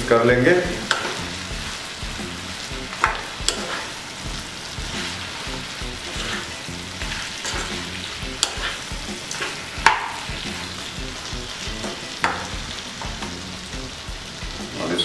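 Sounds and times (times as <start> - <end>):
chicken sizzling in hot oil: 0.0 - 15.0
spatula clacking against pan: 0.7 - 1.3, 2.9 - 4.0, 5.8 - 10.8, 11.7 - 13.4.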